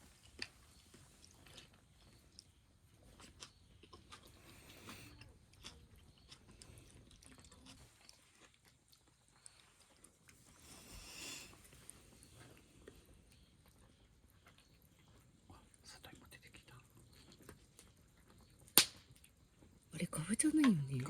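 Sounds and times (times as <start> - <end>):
person chewing: 0.1 - 15.3.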